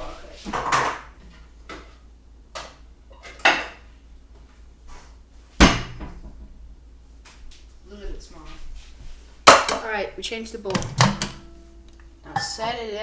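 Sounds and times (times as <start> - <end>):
dishes knocking and clattering: 0.5 - 1.8, 9.5 - 9.9, 10.7 - 12.8.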